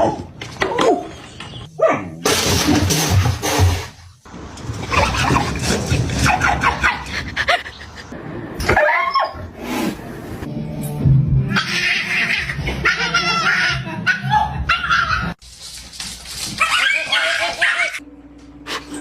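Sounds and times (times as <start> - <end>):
dog barking and yipping: 6.2 - 7.1, 8.7 - 9.4, 11.5 - 15.4, 16.4 - 18.0.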